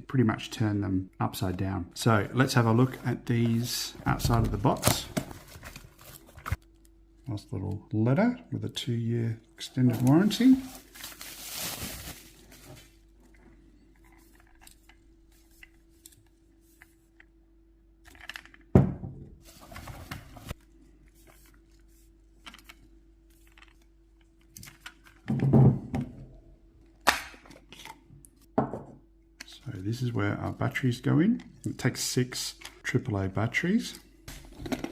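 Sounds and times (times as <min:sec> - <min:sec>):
knocks and thuds of packaging: 0:04.1 - 0:05.7
paper rustling: 0:09.8 - 0:13.0.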